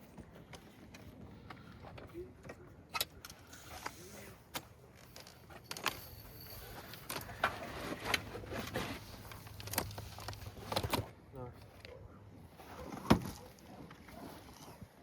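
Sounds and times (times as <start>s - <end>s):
rustling noise: 5.0s - 11.1s.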